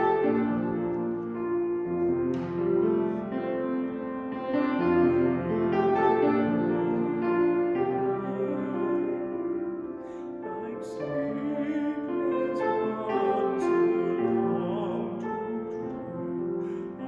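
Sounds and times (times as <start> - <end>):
person singing a hymn: 0.0 - 17.0.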